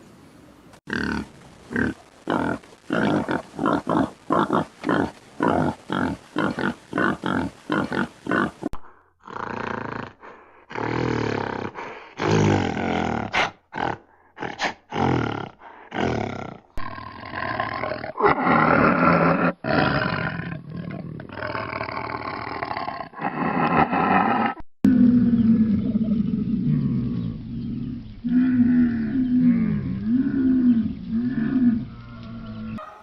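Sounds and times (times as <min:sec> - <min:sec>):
animal roaring: 0:00.9 - 0:33.0.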